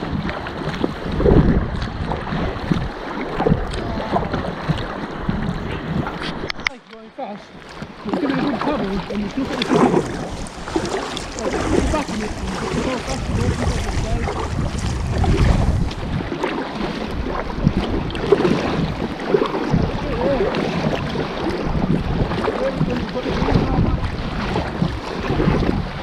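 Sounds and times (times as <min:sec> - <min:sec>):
wind buffeting microphone: 0:00.0 - 0:06.8, 0:07.7 - 0:26.0
water lapping around kayak: 0:00.0 - 0:26.0.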